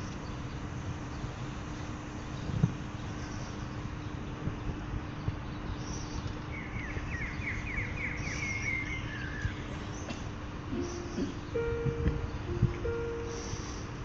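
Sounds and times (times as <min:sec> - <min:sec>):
small bird singing: 0:00.0 - 0:14.0
low hum: 0:10.4 - 0:14.0
piano notes: 0:10.6 - 0:14.0.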